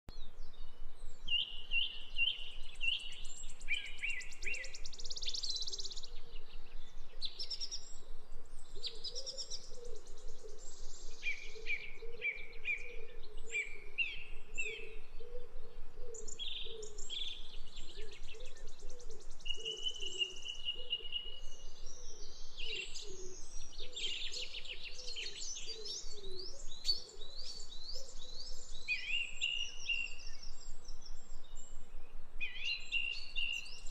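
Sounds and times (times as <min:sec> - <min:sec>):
songbirds chirping and trilling: 0:00.1 - 0:33.9.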